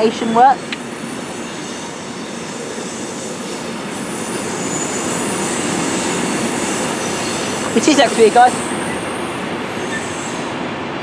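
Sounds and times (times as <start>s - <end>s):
faint high wheel squeal: 0.0s - 10.9s
train wheels rumbling on rail: 0.0s - 11.0s.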